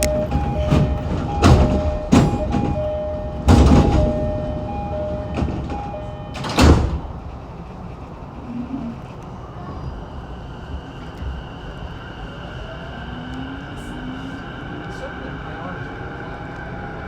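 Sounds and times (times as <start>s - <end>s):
two-note train door chime: 0.0s - 7.0s
train doors sliding: 0.0s - 10.1s.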